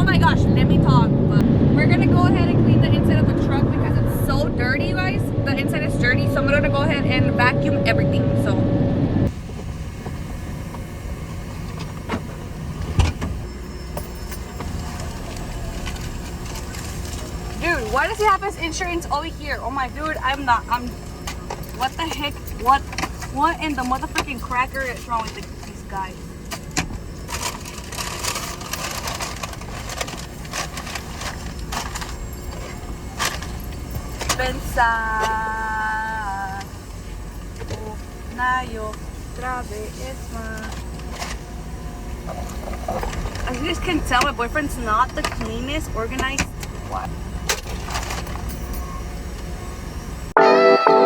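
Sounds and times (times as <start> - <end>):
steady low rumble: 0.0 - 50.4
papers crinkling: 14.6 - 18.4, 27.2 - 34.4.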